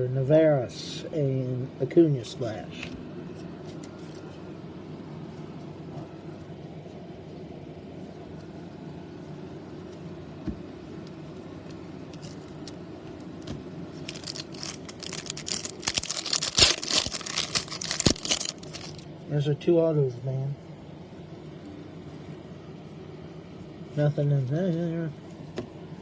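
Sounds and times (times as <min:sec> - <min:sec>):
low steady hum: 0:00.0 - 0:26.0
trading cards crinkling and clicking: 0:13.4 - 0:19.0.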